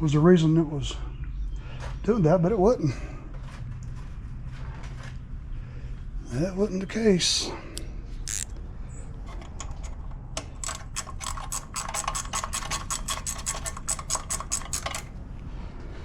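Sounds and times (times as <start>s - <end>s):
ratchet wrench clicking: 8.3s - 8.5s, 10.4s - 15.2s.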